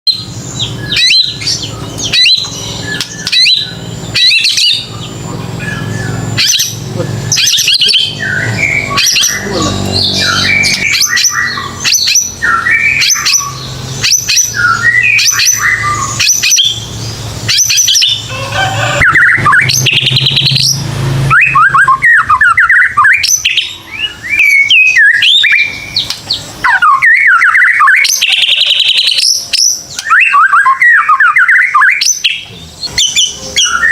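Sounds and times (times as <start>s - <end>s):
songbird singing: 0.1s - 33.9s
low hum: 0.2s - 24.7s.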